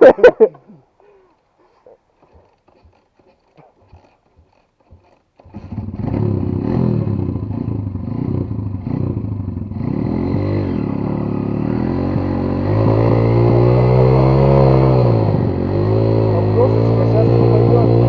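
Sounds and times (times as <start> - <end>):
motorcycle engine revving: 5.4 - 18.0.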